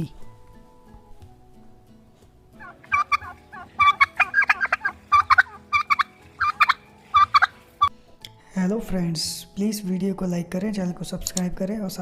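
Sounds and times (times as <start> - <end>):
turkey gobbling: 2.6 - 7.9.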